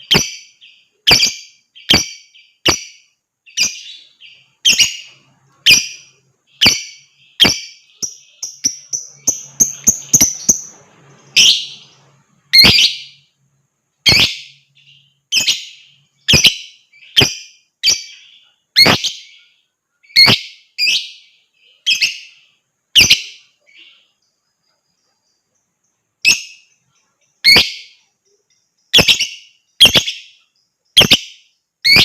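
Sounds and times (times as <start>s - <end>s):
lovebird sharp high calls: 0.0s - 10.7s, 12.5s - 13.2s, 14.0s - 14.6s, 15.3s - 19.4s, 20.0s - 22.3s, 22.9s - 23.4s, 27.4s - 28.0s, 28.9s - 32.0s.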